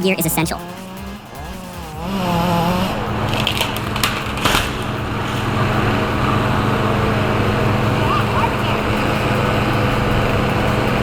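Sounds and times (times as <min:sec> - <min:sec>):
heavy machine engine running: 0:00.0 - 0:11.0
sharp cracks and crunches: 0:03.3 - 0:04.9.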